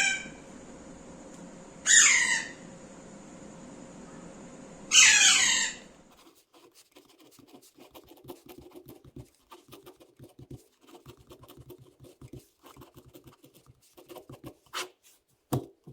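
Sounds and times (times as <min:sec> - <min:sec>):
parrot call: 0:00.0 - 0:00.4, 0:01.8 - 0:02.7, 0:04.9 - 0:06.0.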